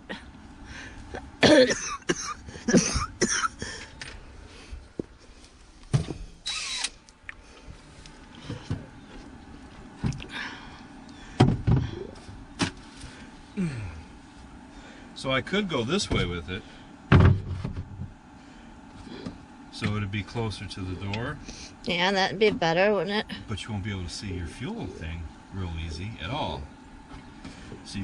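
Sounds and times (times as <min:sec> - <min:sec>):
plastic fuel tank knocking and rattling: 0:11.4 - 0:12.0, 0:17.1 - 0:18.2.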